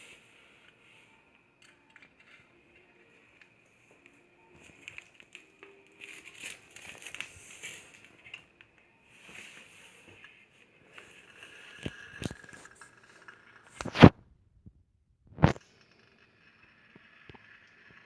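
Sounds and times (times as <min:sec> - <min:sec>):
paper or plastic crinkling: 0:04.6 - 0:08.5.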